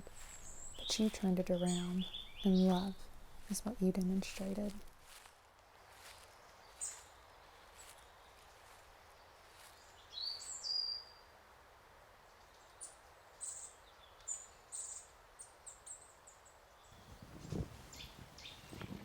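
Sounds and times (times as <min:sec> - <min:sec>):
faint steady background hiss: 0:00.0 - 0:19.0
birds chirping and calling: 0:00.2 - 0:03.1, 0:17.0 - 0:19.0.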